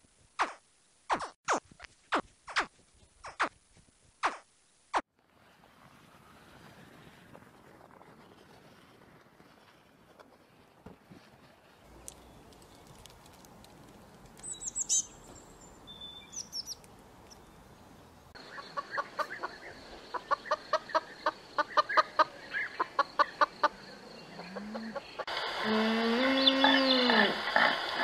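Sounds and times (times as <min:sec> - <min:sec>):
small bird high falling chirps: 0:14.4 - 0:17.5
hen clucking: 0:18.4 - 0:25.3
low drawn-out animal call: 0:23.6 - 0:25.0, 0:25.6 - 0:28.0.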